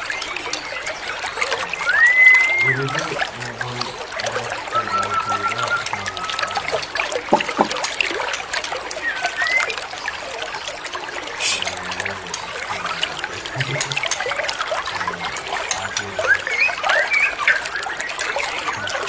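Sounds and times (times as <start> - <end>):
birds chirping: 0.0 - 19.0
trickling water: 0.0 - 19.0
short whistled notes: 1.9 - 2.9, 4.7 - 7.7.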